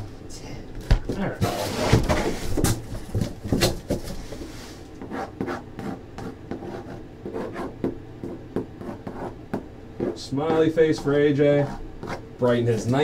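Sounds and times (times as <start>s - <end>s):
marker pen rubbing strokes: 5.0s - 9.4s, 10.0s - 12.2s.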